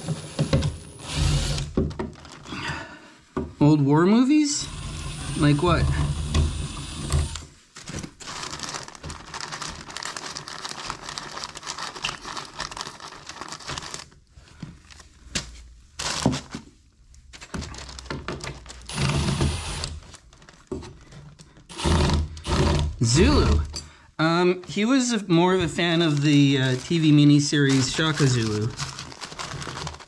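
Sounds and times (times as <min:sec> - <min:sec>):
sheet material crinkling: 0:02.1 - 0:02.6, 0:07.5 - 0:18.9, 0:20.0 - 0:21.6, 0:25.5 - 0:30.0.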